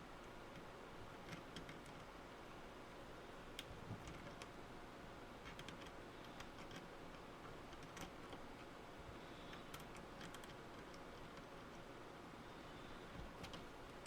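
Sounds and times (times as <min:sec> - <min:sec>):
low steady hiss: 0:00.0 - 0:14.0
small clicks and ticks: 0:00.2 - 0:02.1, 0:03.5 - 0:04.6, 0:05.4 - 0:08.8, 0:09.4 - 0:11.9, 0:13.1 - 0:13.7.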